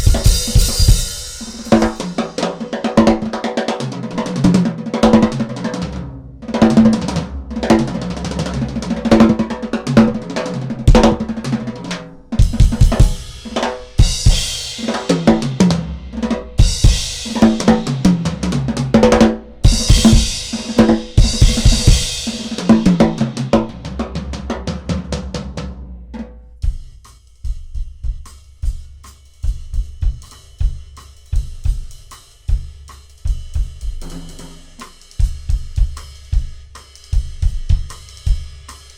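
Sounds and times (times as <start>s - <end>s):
crashing cymbals: 0.0s - 2.6s, 12.2s - 15.7s
drum kit solo: 0.0s - 38.9s.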